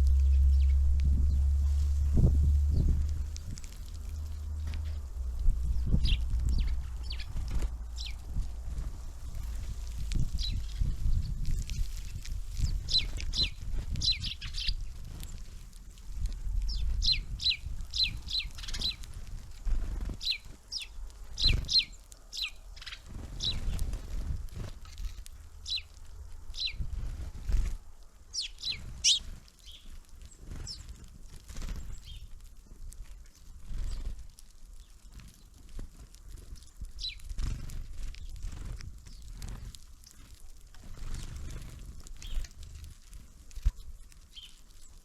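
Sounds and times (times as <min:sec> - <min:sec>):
songbirds calling: 0:00.0 - 0:15.8, 0:16.6 - 0:27.7, 0:28.3 - 0:32.4, 0:33.4 - 0:34.2, 0:34.8 - 0:45.0
low rumble: 0:00.0 - 0:27.9.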